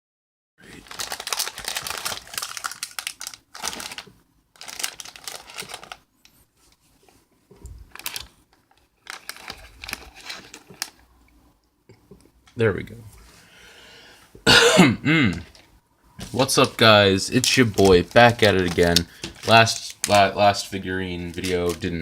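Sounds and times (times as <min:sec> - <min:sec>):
packaging crinkling and rustling: 0:00.6 - 0:06.1, 0:06.7 - 0:11.1, 0:15.4 - 0:22.0.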